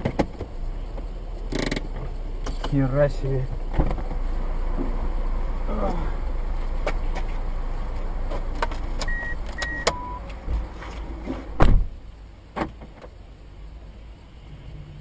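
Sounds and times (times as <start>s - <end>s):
road and engine rumble: 0.0s - 15.0s
short electronic beeps: 9.1s - 10.2s
loud heavy thump: 11.4s - 12.0s.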